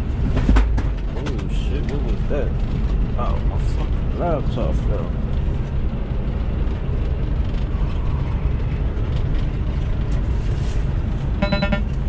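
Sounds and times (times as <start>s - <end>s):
road noise: 0.0s - 12.0s
truck engine rumble: 0.0s - 12.0s
brief high-pitched tone: 11.4s - 12.0s.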